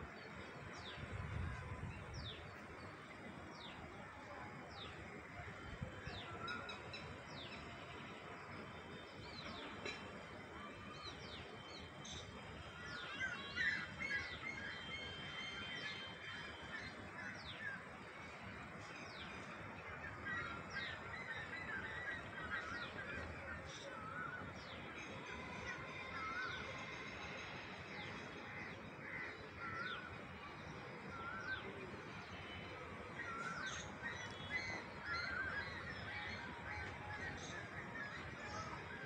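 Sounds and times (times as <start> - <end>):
outdoor background hiss: 0.0 - 39.0.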